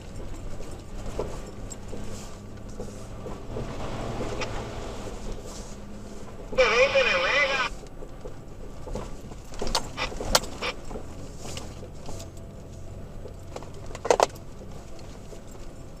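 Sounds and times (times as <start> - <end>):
clicks knocks and jangling rattles: 0.0 - 4.4, 7.9 - 16.0
engine and road hum: 0.0 - 16.0.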